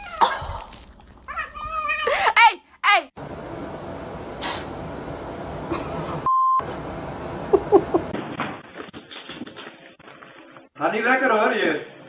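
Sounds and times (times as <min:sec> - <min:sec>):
pure bleep tone: 0:06.3 - 0:06.6.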